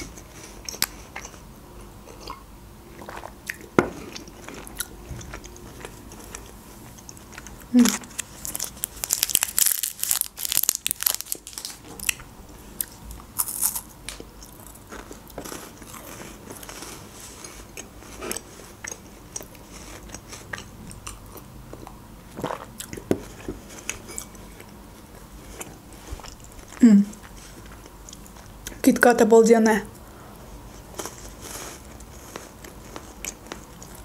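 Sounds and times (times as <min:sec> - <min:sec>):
crunching chocolate wafer: 0:04.2 - 0:12.2, 0:12.8 - 0:17.1.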